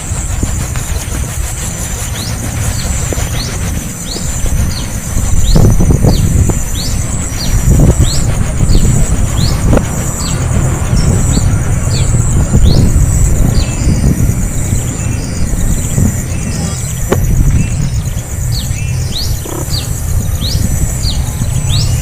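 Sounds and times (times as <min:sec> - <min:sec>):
heavy low rumble: 0:00.0 - 0:22.0
young bird chirping: 0:00.4 - 0:22.0.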